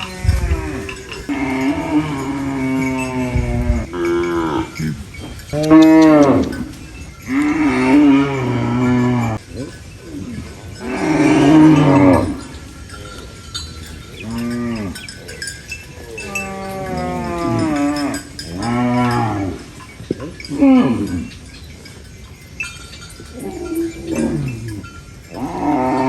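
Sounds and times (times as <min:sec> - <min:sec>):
cows mooing: 0:00.0 - 0:21.6, 0:22.7 - 0:26.0.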